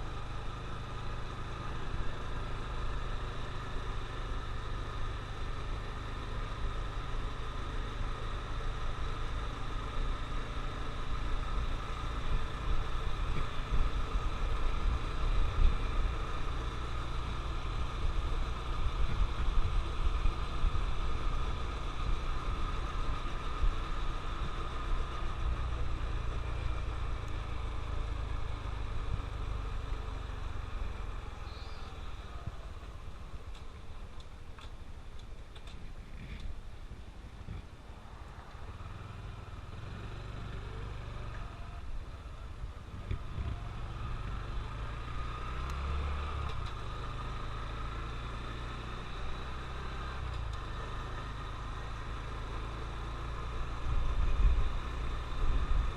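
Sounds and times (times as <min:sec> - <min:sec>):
motorcycle engine running: 0:00.0 - 0:34.7, 0:37.4 - 0:55.9
wind rumbling on microphone: 0:31.8 - 0:38.6, 0:41.7 - 0:44.2.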